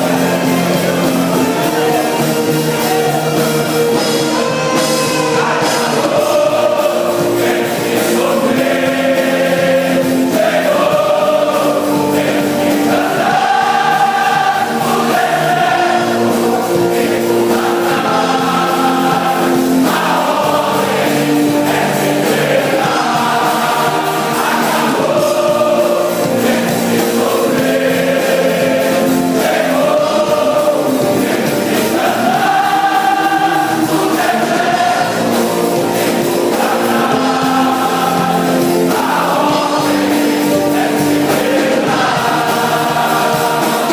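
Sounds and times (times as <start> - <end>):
gospel choir singing a hymn: 0.0 - 43.9
instrumental accompaniment: 0.0 - 43.9.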